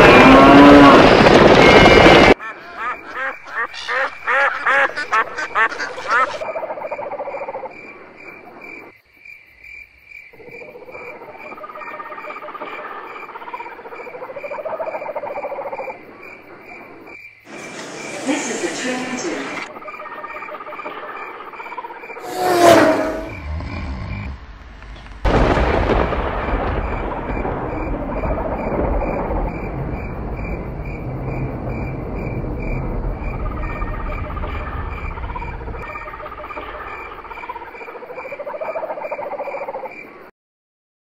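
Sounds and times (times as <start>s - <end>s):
rumbling noise: 0.0s - 2.4s, 22.2s - 37.4s
insect chirping: 2.4s - 24.6s, 25.3s - 40.3s.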